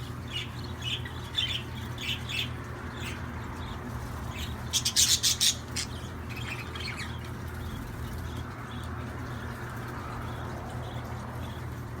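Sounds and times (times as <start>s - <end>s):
budgerigars chirping: 0.3s - 7.2s.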